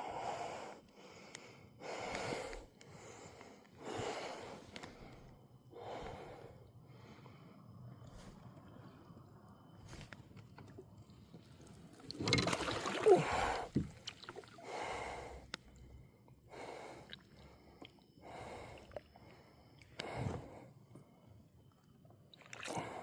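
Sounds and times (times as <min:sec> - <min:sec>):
water swishes: 0:09.9 - 0:14.6
water splashing: 0:12.0 - 0:14.6.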